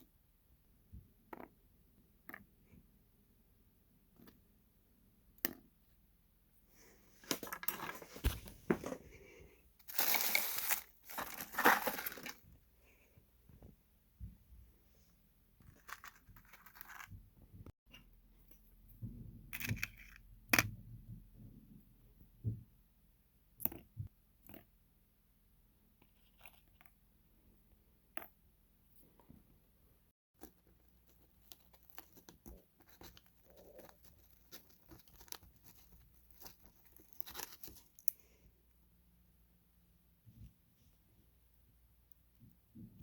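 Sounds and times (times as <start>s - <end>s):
rustling and tearing: 9.8s - 12.4s, 30.9s - 38.1s.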